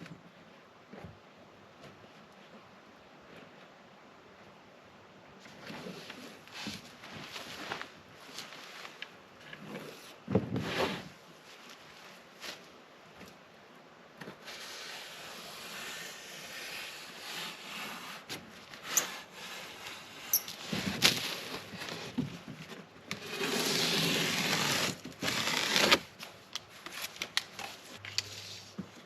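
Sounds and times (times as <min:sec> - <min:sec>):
styrofoam scraping and crackling: 0:14.3 - 0:28.8
styrofoam rasping: 0:14.4 - 0:22.2, 0:23.1 - 0:26.2.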